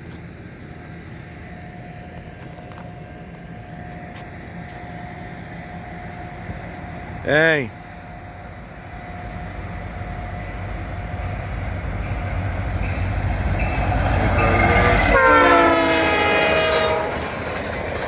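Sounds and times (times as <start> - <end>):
locomotive engine rumble: 0.0 - 18.0
train air horn chord: 14.5 - 17.3.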